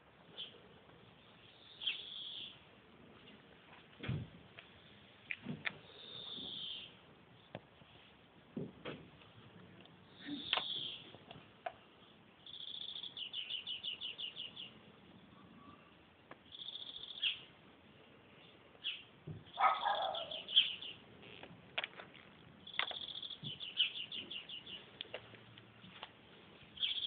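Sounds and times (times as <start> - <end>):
small bird singing: 1.2 - 2.6, 5.8 - 7.6, 10.1 - 11.1, 11.8 - 17.5, 18.4 - 21.4, 22.1 - 25.1, 26.7 - 27.0.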